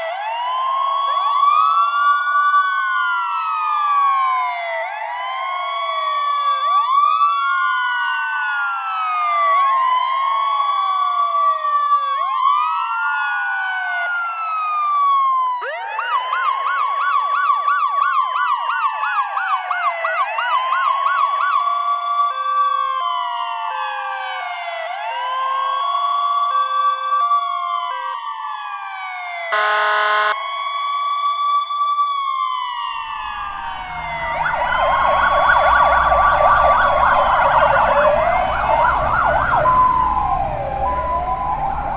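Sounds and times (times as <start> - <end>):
emergency sirens wailing: 0.0 - 41.9
short horn blast: 29.6 - 30.4.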